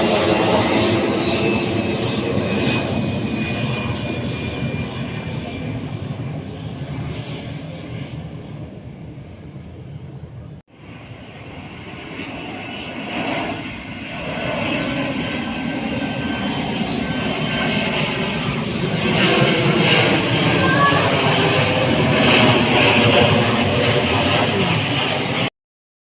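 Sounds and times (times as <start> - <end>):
airplane engine drone: 0.0 - 25.5.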